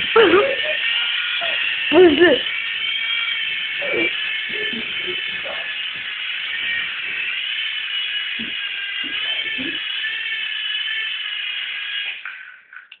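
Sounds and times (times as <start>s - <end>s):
helicopter motor whining: 0.0s - 11.5s.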